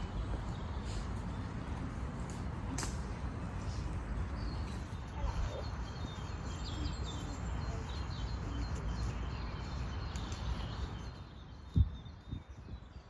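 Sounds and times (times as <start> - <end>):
small birds chirping: 3.6 - 13.0
wind buffeting microphone: 9.9 - 13.0.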